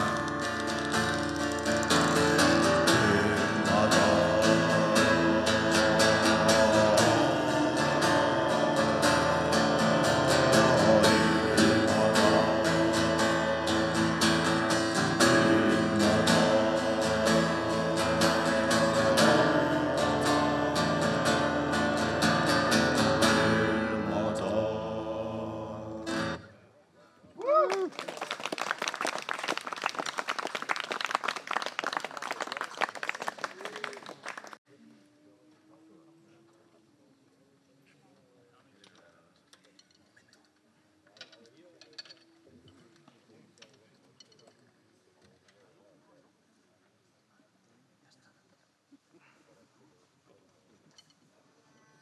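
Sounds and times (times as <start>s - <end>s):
acoustic guitar strumming: 0.0s - 26.4s
guitar melody: 0.0s - 26.4s.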